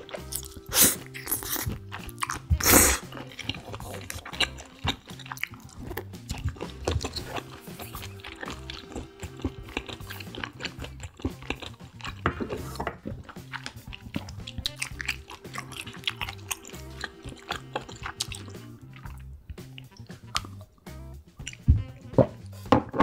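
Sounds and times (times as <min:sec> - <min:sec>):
chewing with wet mouth clicks: 0:00.0 - 0:21.7
background music: 0:00.0 - 0:23.0.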